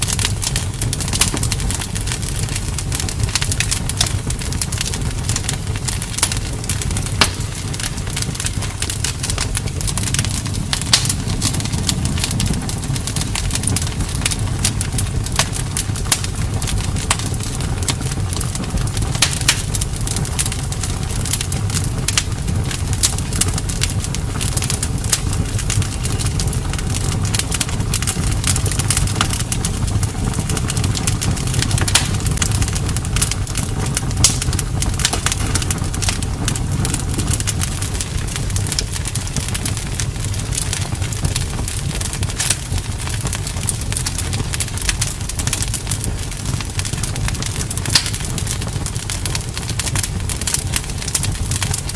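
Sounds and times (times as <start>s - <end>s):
burning wood crackling and popping: 0.0s - 51.9s
campfire flames rumbling: 0.0s - 51.9s.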